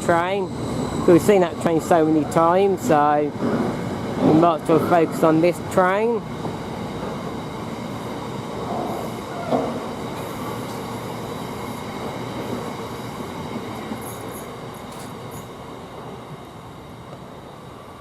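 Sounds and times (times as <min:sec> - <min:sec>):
train wheel squeals: 0:07.1 - 0:15.6.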